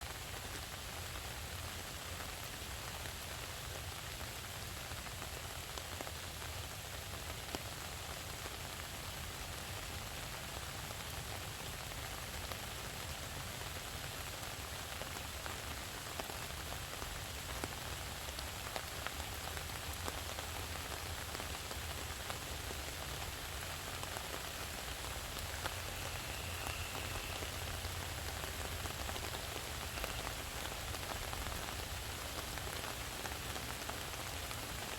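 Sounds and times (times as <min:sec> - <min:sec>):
steady rain hiss: 0:00.0 - 0:34.9
raindrops ticking: 0:16.2 - 0:34.9.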